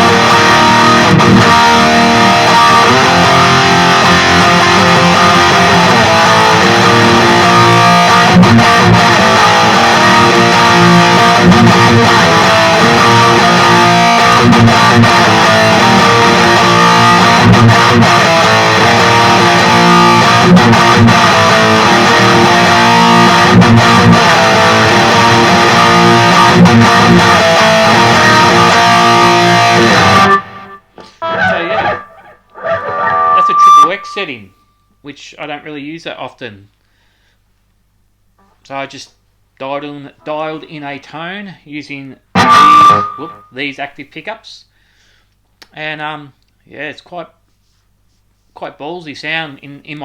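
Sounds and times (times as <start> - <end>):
distorted electric guitar riffing: 0.0 - 34.5, 42.3 - 43.6.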